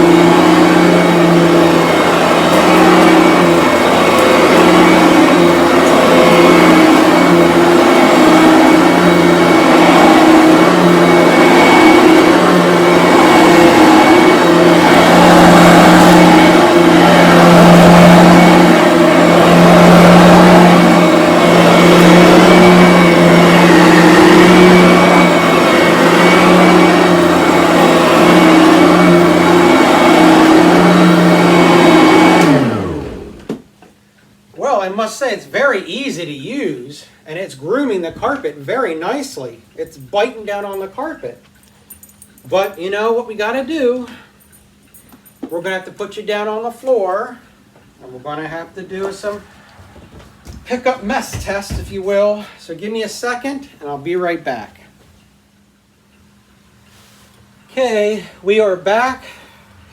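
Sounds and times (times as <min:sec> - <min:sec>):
vacuum motor winding down: 0:00.0 - 0:33.6
vacuum cleaner running: 0:00.0 - 0:33.8, 0:45.4 - 0:54.4.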